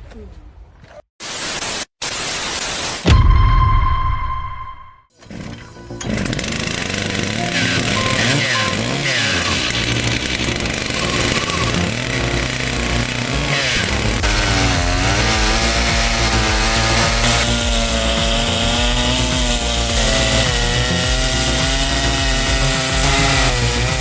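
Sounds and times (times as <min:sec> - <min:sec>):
chainsaw engine running: 0:05.2 - 0:24.0.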